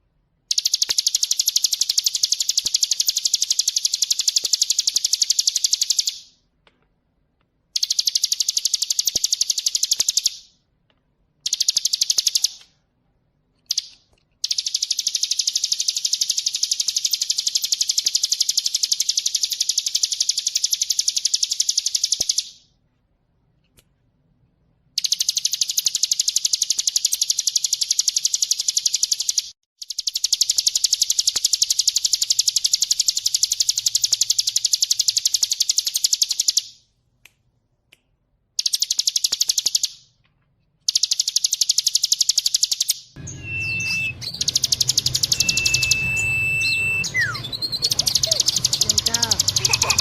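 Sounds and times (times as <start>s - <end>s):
scattered chirps: 0.0s - 6.4s, 7.7s - 10.7s, 11.4s - 12.9s, 13.6s - 22.8s, 24.9s - 37.0s, 38.5s - 40.2s, 40.8s - 50.0s
bird rattling trill song: 0.5s - 6.4s, 7.8s - 10.6s, 11.4s - 12.6s, 13.6s - 22.6s, 25.0s - 36.8s, 38.6s - 40.1s, 40.9s - 50.0s
high whistles: 40.9s - 50.0s.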